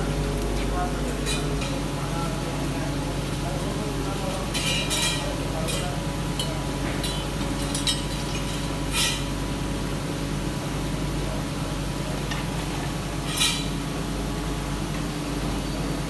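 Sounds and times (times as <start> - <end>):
workshop machinery humming: 0.0 - 16.0.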